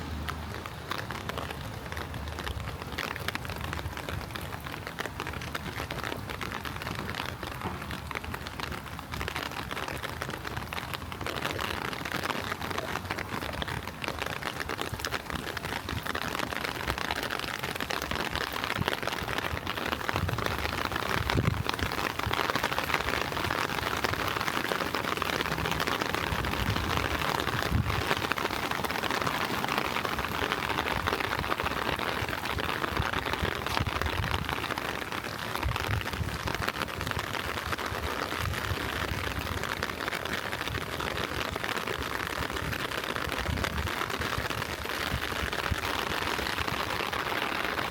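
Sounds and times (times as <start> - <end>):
gentle rain falling: 0.0 - 47.9.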